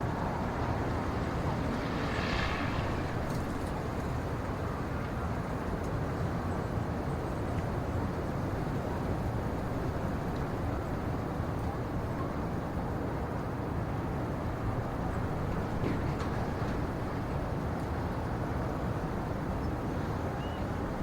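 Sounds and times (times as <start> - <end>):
low rumbling outdoor ambience: 0.0 - 5.2.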